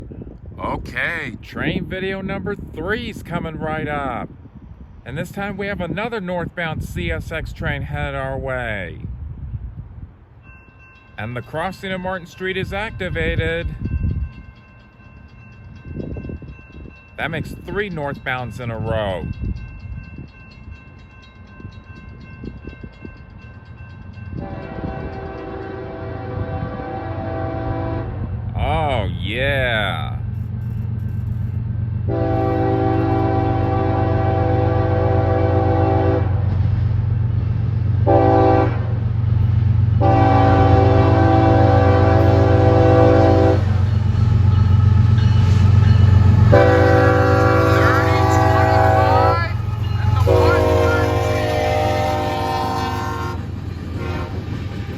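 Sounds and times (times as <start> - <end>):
low rumble of train: 0.0 - 54.9
crossing bell ringing: 10.3 - 26.0, 39.3 - 54.5
locomotive horn: 24.4 - 28.3, 32.1 - 36.5, 38.0 - 39.0, 40.0 - 43.8, 46.2 - 54.6.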